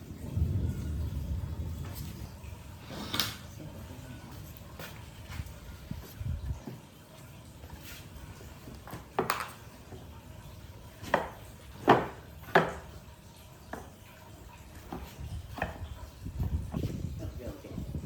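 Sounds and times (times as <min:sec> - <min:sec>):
hard objects knocking: 0:08.8 - 0:10.1, 0:11.0 - 0:13.0.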